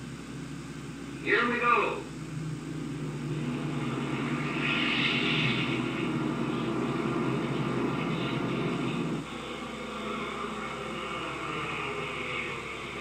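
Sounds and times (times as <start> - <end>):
propeller airliner engines droning: 0.0 - 13.0.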